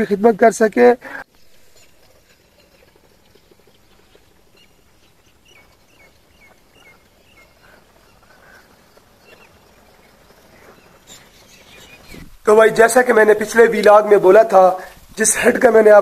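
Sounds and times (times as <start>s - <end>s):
faint bird calls: 3.1s - 12.4s.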